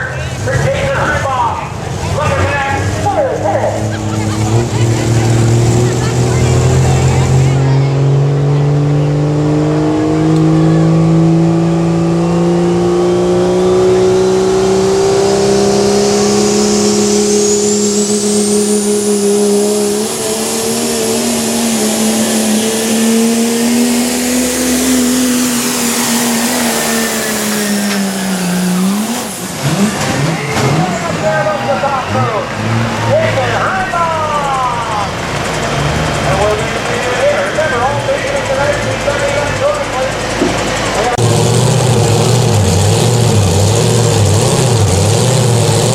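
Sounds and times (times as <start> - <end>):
truck engine running flat out: 0.0 - 45.9
high mechanical whine: 15.2 - 32.0.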